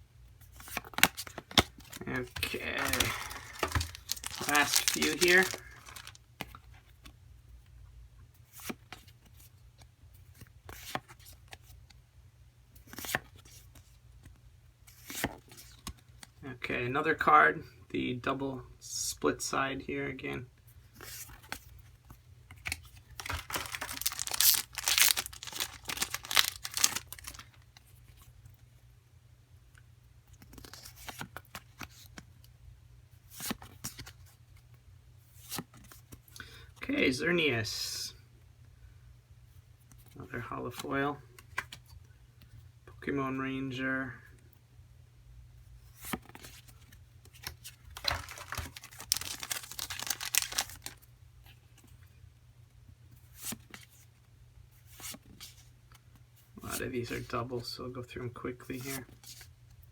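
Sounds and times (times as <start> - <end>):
handling wrapper and cards: 0.6 - 6.6, 22.6 - 27.8, 30.4 - 32.1, 46.0 - 51.1
foil pack tearing: 2.4 - 6.2, 23.2 - 27.4, 48.0 - 51.0.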